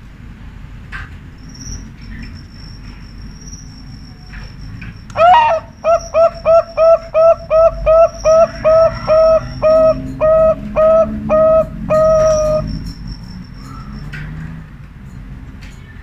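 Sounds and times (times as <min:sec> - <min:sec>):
dove cooing: 0:05.2 - 0:12.8.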